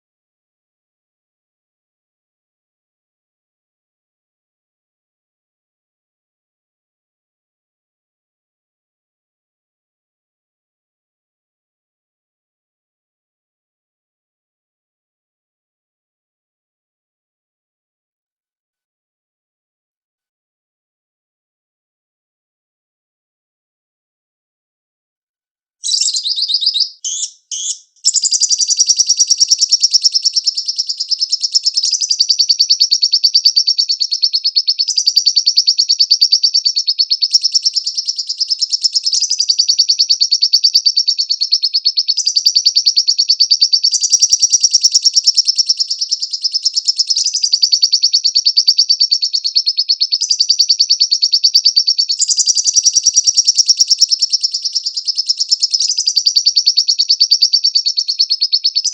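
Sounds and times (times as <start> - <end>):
bird chattering song: 25.8 - 58.9.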